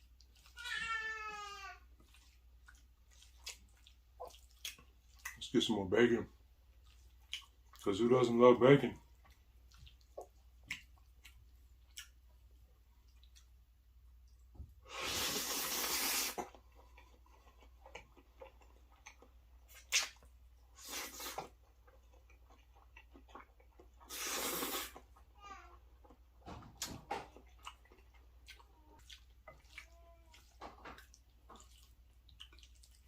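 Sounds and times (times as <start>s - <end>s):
chewing food: 0.0s - 14.6s, 16.4s - 33.0s
wet mouth clicks: 19.0s - 20.3s.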